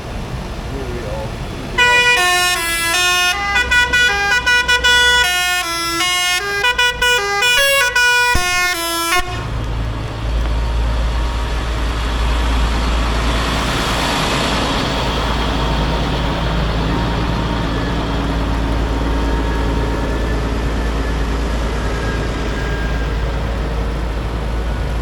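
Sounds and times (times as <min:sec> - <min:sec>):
low vehicle engine rumble: 0:00.0 - 0:25.0
musical vehicle horn: 0:01.8 - 0:10.5.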